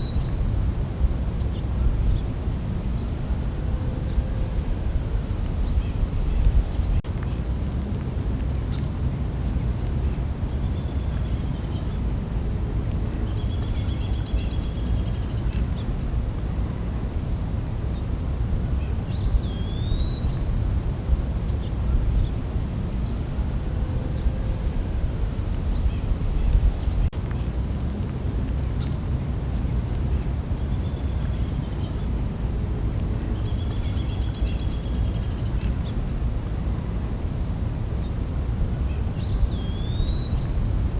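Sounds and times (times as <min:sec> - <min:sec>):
cricket-like chirps: 0:00.0 - 0:40.9
high insect drone: 0:09.1 - 0:40.9.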